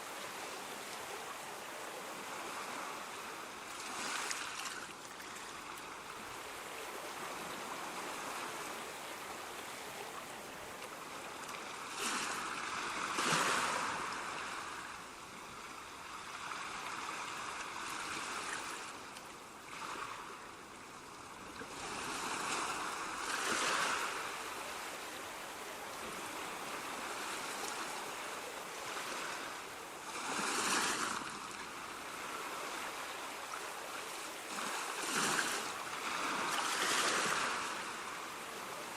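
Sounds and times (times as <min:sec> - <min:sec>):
surf washing: 0:00.0 - 0:38.9
ocean waves crashing: 0:11.7 - 0:15.0, 0:21.7 - 0:38.9.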